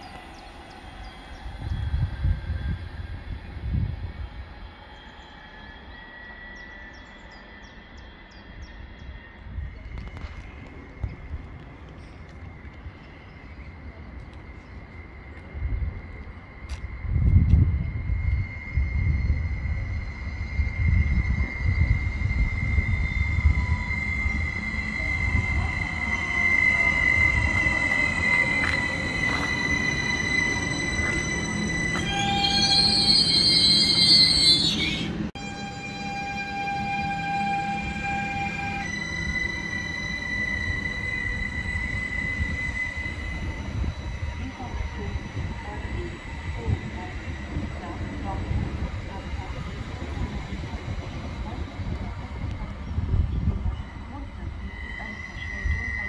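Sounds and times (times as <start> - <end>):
bird singing high falling notes: 0.0 - 9.8, 17.6 - 48.1
rumble of distant trains: 0.0 - 56.0.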